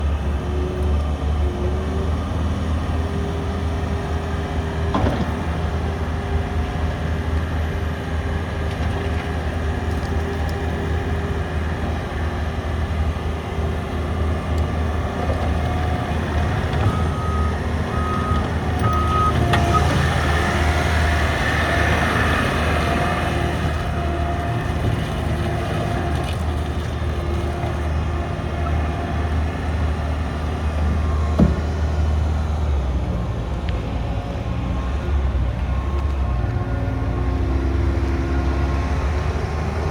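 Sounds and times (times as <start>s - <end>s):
diesel engine running: 0.0s - 39.9s
reversing alarm beeps: 16.8s - 20.0s.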